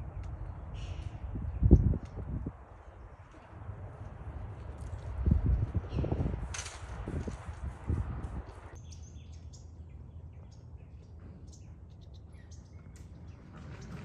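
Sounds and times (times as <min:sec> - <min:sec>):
songbird chirping: 0:08.5 - 0:14.0.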